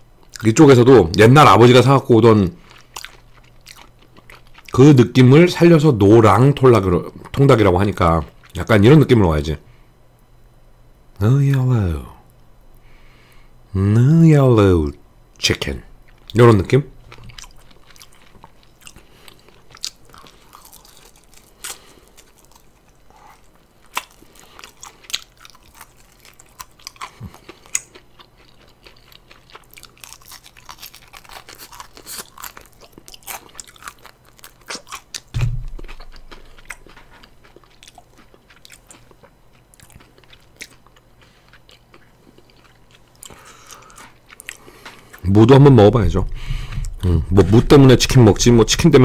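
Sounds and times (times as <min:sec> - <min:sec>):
crunchy chewing of fried chicken: 0:00.1 - 0:08.9, 0:15.6 - 0:49.0
low thump: 0:35.3 - 0:35.8.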